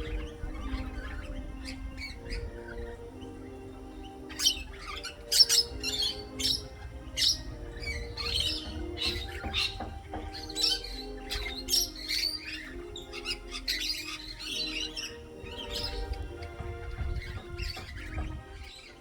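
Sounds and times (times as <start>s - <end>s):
garden birds calling: 0.0s - 19.0s
harsh bird chirping: 0.0s - 19.0s
soft background music: 0.0s - 19.0s.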